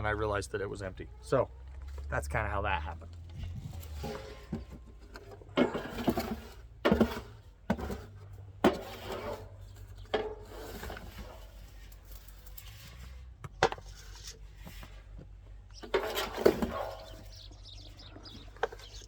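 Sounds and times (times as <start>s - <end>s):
rustling: 3.0s - 19.0s.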